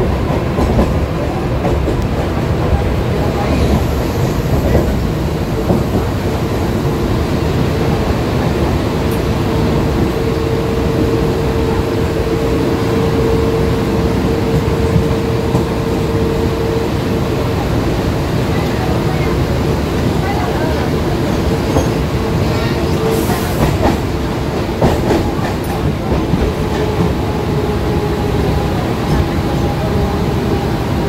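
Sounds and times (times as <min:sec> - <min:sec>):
train wheels clattering on track: 0:00.0 - 0:07.0, 0:07.8 - 0:30.7.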